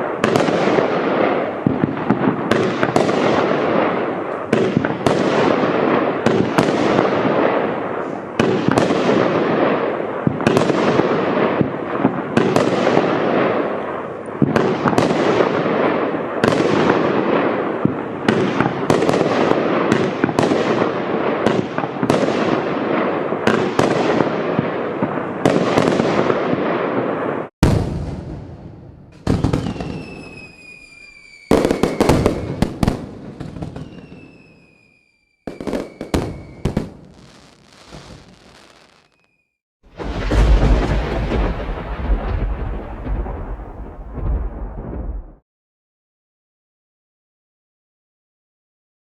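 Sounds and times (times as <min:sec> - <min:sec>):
firework cake bangs: 0:39.9 - 0:45.4.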